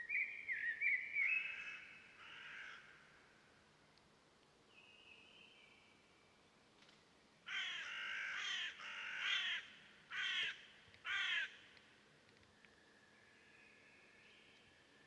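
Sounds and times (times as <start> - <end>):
faint thin bird whistle: 0.0 - 1.8
bird giving harsh caw-like calls: 1.5 - 3.0, 7.5 - 11.6.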